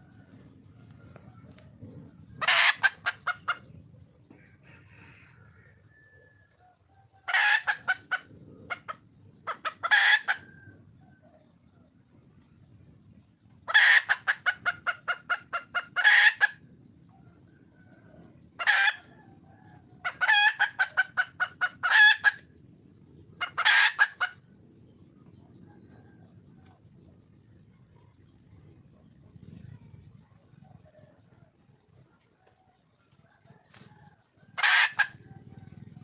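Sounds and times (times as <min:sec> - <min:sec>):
hen clucking: 0:00.0 - 0:12.5, 0:13.4 - 0:36.0.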